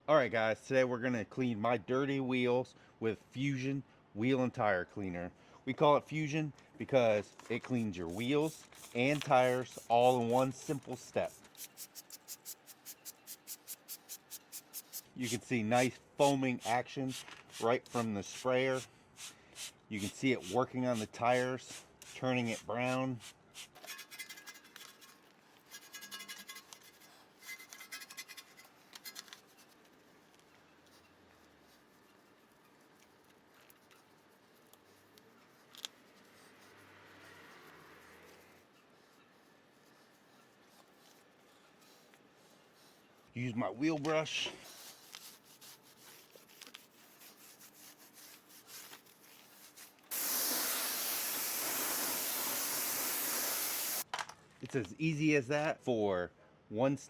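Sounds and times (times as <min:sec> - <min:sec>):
trigger sprayer hissing pumps: 0:07.6 - 0:23.8, 0:50.1 - 0:54.0
brush scrubbing a tire: 0:07.6 - 0:24.3, 0:44.1 - 0:54.0.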